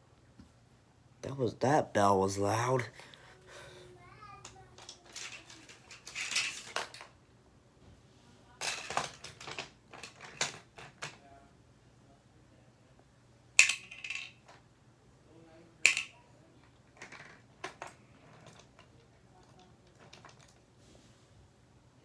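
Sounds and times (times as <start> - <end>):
plastic toy pieces clicking: 4.4 - 7.1, 13.6 - 14.5, 15.8 - 16.1.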